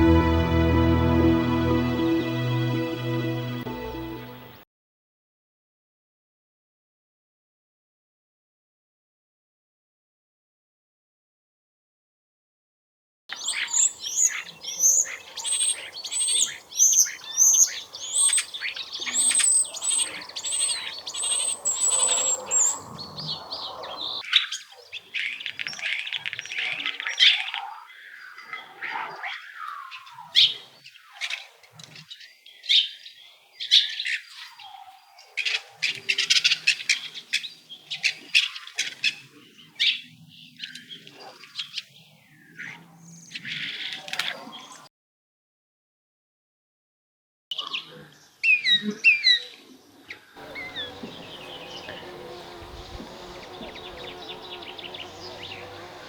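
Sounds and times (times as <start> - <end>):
small birds chirping: 13.3 - 44.9, 50.4 - 56.0.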